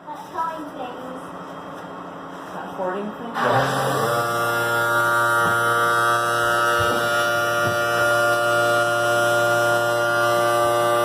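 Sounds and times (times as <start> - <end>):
electric motor humming: 3.4 - 11.0.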